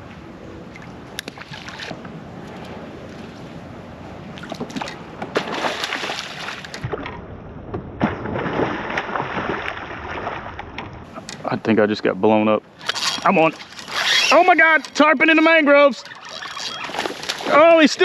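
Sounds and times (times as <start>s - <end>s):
water lapping around kayak: 0.0s - 7.2s, 8.0s - 11.5s, 12.6s - 18.0s
small splashes and knocks: 4.4s - 11.0s, 16.0s - 17.6s.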